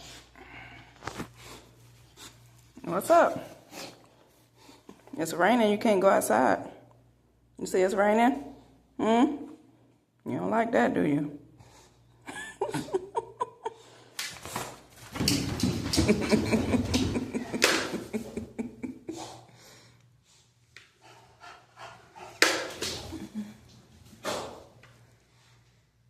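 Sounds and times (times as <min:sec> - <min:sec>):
knocks and rustling: 0:14.5 - 0:18.1.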